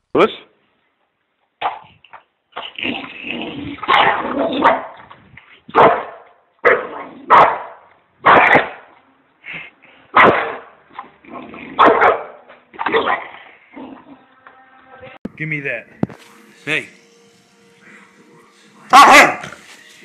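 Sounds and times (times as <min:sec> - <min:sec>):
dog barking: 0:03.9 - 0:05.0, 0:05.7 - 0:08.9, 0:10.1 - 0:10.8, 0:11.8 - 0:13.2, 0:18.9 - 0:19.6.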